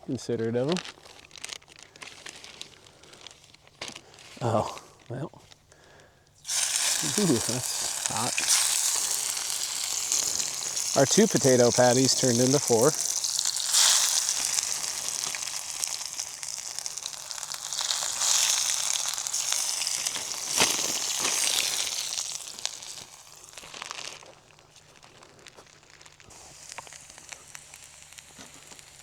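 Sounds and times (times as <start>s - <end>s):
patties sizzling in a skillet: 6.3s - 29.0s.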